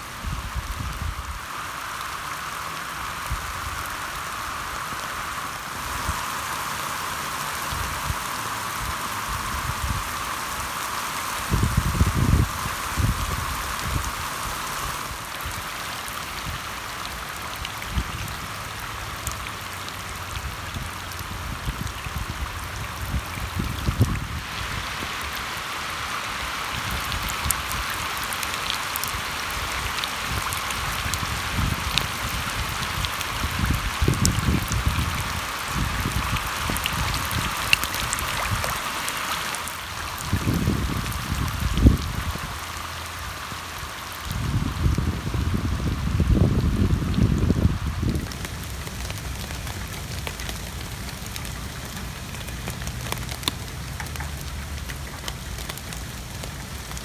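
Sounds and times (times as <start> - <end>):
heavy rain splashing on water: 0.0 - 57.0
water dripping: 14.9 - 25.7, 26.6 - 43.6, 48.0 - 57.0.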